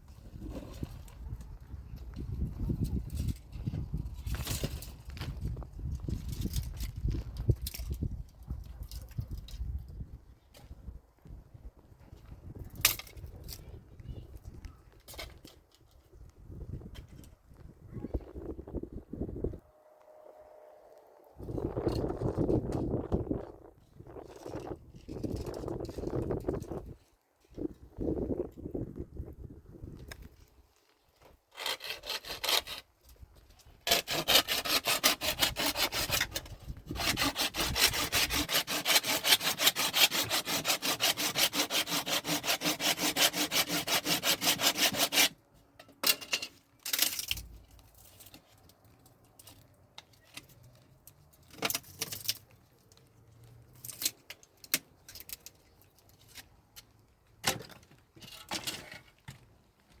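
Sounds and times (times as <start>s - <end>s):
rasping back-and-forth strokes: 31.5s - 32.8s, 33.9s - 45.4s.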